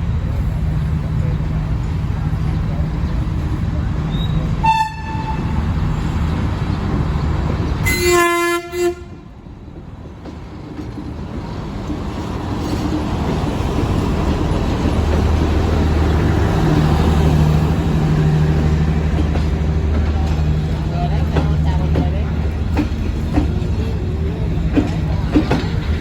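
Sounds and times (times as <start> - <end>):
train rumbling: 0.0 - 26.0
locomotive horn blast: 4.6 - 5.6, 7.8 - 9.2.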